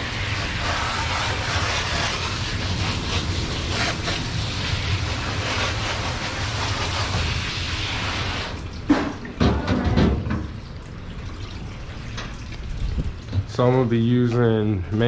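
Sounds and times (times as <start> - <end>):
water spraying from hose: 0.0 - 9.1.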